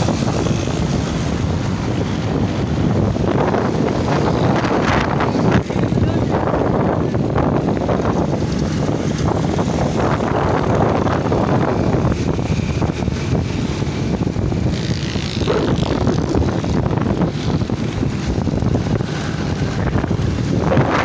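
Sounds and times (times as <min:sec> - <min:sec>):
wind rushing over microphone: 0:00.0 - 0:21.0
motorbike engine running: 0:10.6 - 0:21.0.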